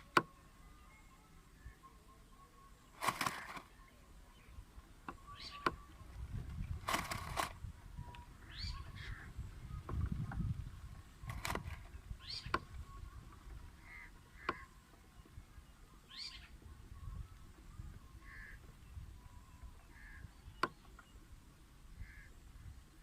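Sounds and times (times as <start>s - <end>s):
sharp clicks: 3.0s - 3.7s, 6.8s - 8.2s.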